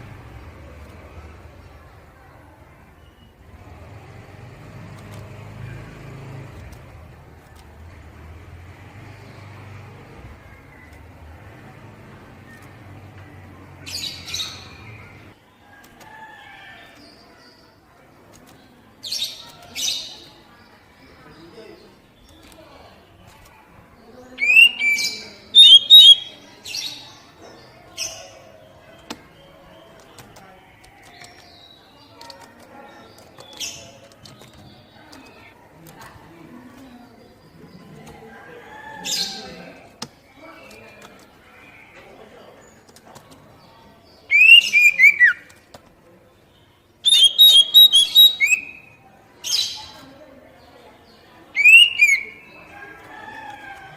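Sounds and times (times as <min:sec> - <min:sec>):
bird whistling calls: 0:24.4 - 0:26.4, 0:44.3 - 0:45.5, 0:47.0 - 0:49.0, 0:51.6 - 0:52.4.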